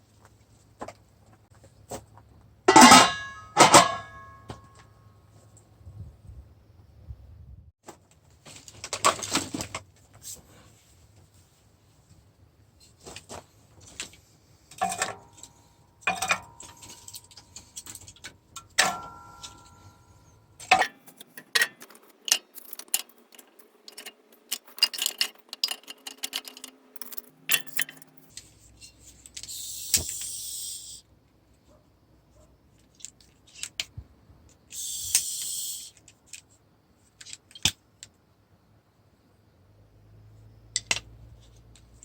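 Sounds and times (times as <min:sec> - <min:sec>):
short hiss: 0:29.4 - 0:31.0, 0:34.8 - 0:36.0.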